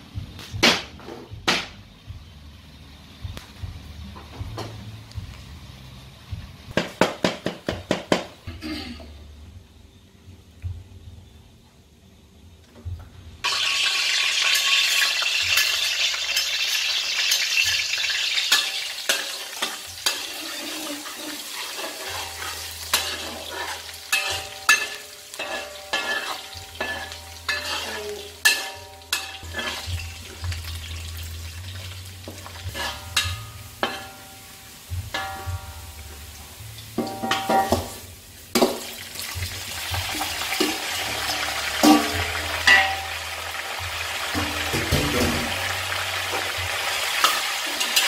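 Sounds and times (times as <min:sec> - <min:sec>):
aromatics sizzling in hot oil: 0:13.4 - 0:48.0
metal spatula scraping wok: 0:13.5 - 0:30.8, 0:32.2 - 0:36.0, 0:44.2 - 0:48.0.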